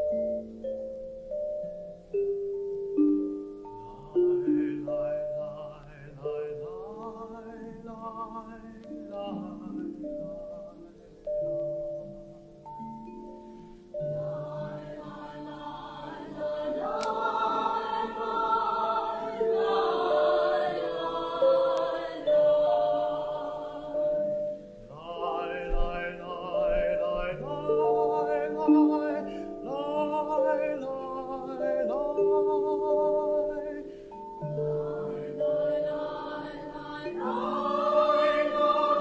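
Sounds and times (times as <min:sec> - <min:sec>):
mallet instruments playing: 0:00.0 - 0:39.0
group of voices singing: 0:14.1 - 0:24.3, 0:24.9 - 0:33.9, 0:34.7 - 0:39.0.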